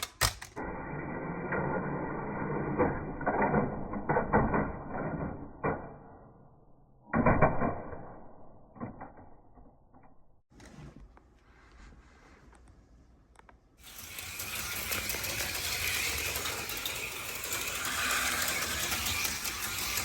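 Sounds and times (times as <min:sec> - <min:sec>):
slot cars clattering on plastic track: 0:13.8 - 0:20.0.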